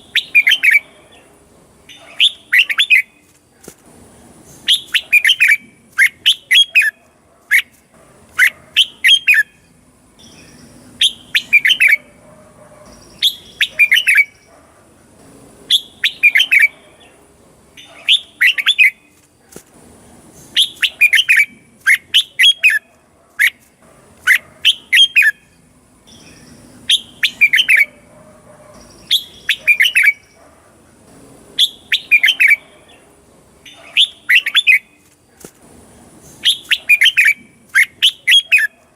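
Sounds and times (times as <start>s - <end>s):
bird singing whistled notes: 0.0s - 1.0s, 1.9s - 3.3s, 4.6s - 7.7s, 8.4s - 12.1s, 12.9s - 14.5s, 15.7s - 16.8s, 17.8s - 19.2s, 20.5s - 23.6s, 24.3s - 28.0s, 28.8s - 30.4s, 31.6s - 32.7s, 33.7s - 35.0s, 36.3s - 38.8s.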